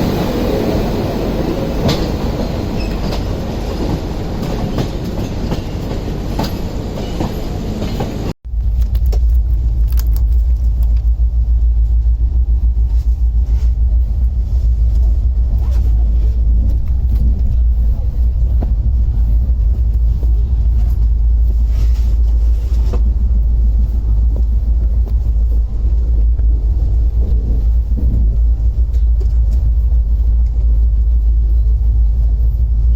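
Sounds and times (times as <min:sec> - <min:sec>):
train rumbling: 0:00.0 - 0:32.9.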